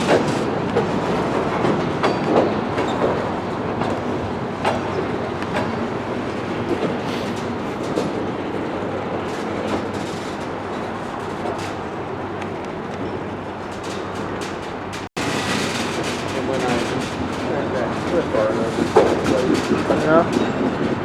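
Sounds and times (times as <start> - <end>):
wheel clicks and knocks: 0.0 - 0.9
freight train rumbling: 0.0 - 21.0.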